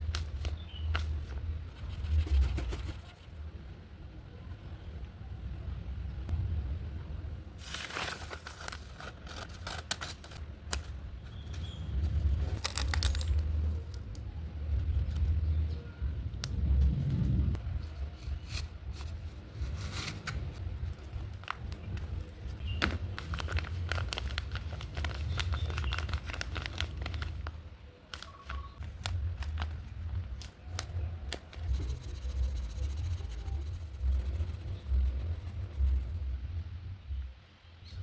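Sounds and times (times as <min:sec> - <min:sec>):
craft materials crinkling: 0:12.4 - 0:14.1, 0:22.8 - 0:32.0
low rumble: 0:13.4 - 0:17.9, 0:28.9 - 0:37.4.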